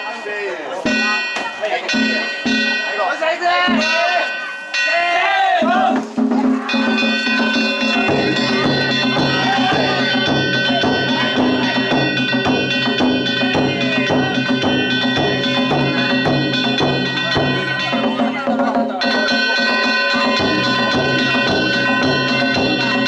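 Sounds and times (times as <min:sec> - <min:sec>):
steady ringing tones: 0:00.0 - 0:05.6, 0:06.6 - 0:23.0
drum beating: 0:00.8 - 0:23.0
metal hand gongs: 0:06.6 - 0:23.0.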